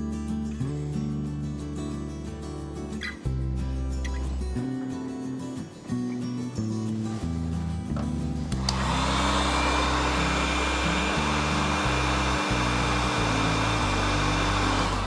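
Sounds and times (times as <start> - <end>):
heat gun blower running: 8.0 - 15.0.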